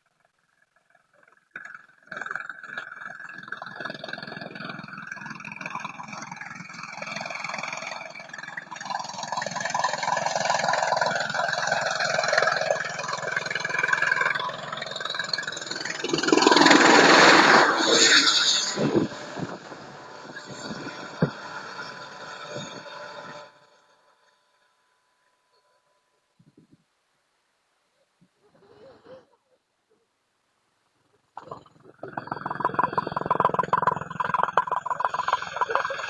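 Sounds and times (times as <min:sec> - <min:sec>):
helicopter engine and rotor: 0:05.7 - 0:17.8, 0:18.7 - 0:23.6.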